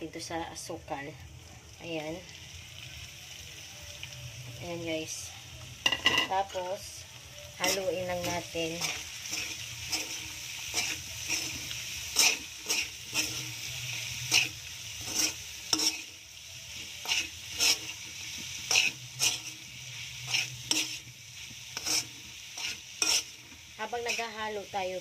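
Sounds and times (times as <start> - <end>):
food sizzling in oil: 0.0 - 25.0
spatula scraping wok: 7.6 - 25.0.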